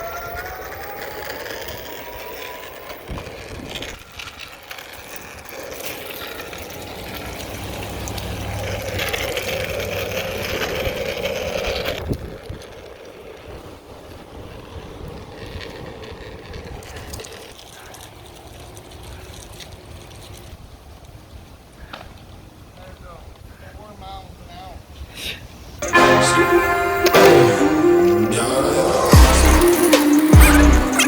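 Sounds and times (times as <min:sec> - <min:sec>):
small electric motor whining: 0:00.0 - 0:04.6.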